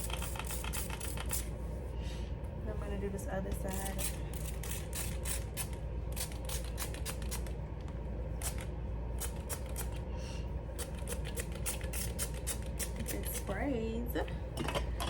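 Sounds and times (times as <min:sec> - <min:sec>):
spray bottle squirting: 0:00.0 - 0:01.5, 0:03.8 - 0:07.5, 0:08.4 - 0:10.0, 0:10.8 - 0:13.5
steady low hum: 0:00.0 - 0:15.0.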